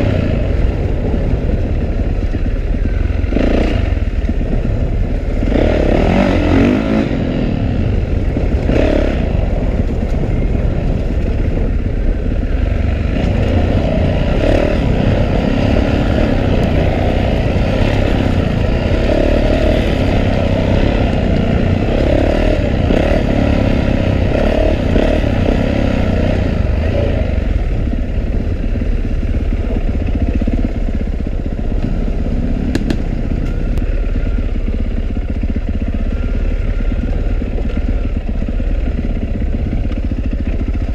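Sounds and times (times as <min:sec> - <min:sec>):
dirt bike engine revving: 0:00.0 - 0:30.8
low wind rumble: 0:00.0 - 0:40.9.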